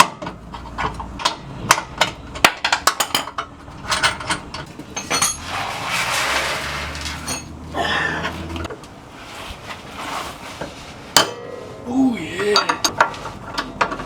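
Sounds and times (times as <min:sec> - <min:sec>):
metal hand tools clinking: 0:03.0 - 0:07.6.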